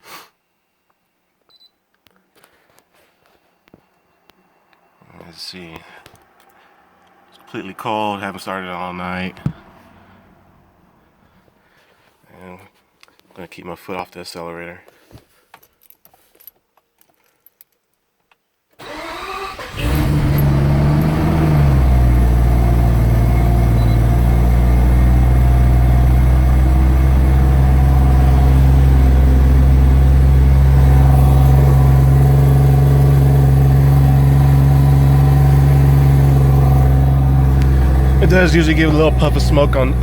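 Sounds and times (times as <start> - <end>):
rotary engine revving and idling: 18.8 - 40.0.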